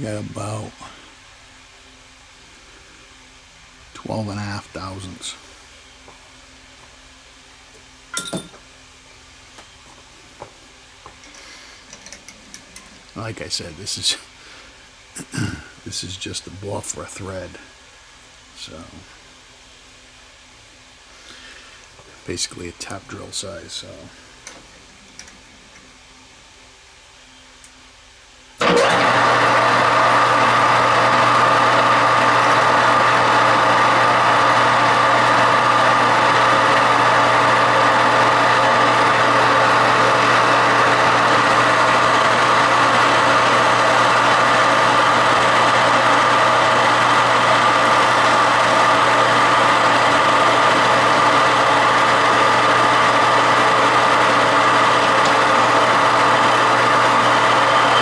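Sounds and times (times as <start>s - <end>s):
metal lathe humming and whining: 28.6s - 58.0s.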